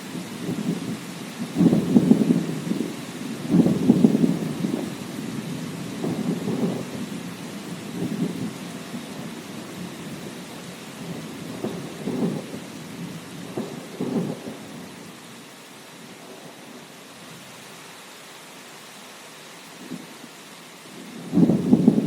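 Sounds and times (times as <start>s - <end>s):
thunder rumbling: 0.0s - 15.2s, 21.0s - 22.0s
heavy rain hiss: 0.0s - 22.0s.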